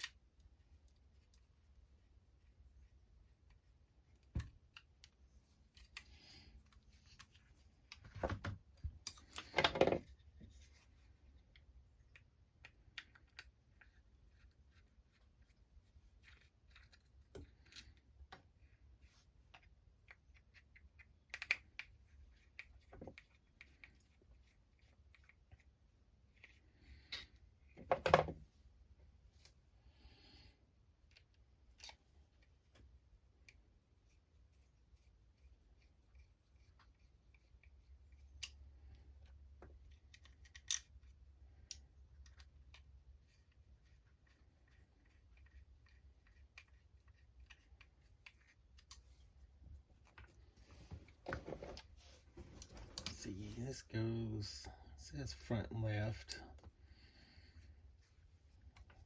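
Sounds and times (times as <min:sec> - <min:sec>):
small parts clicking: 0:39.9 - 0:42.8.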